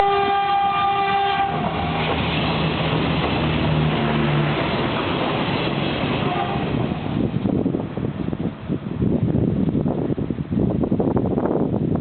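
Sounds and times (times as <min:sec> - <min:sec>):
train horn chord: 0:00.0 - 0:02.0, 0:06.2 - 0:07.0
train running on rails: 0:00.0 - 0:12.0.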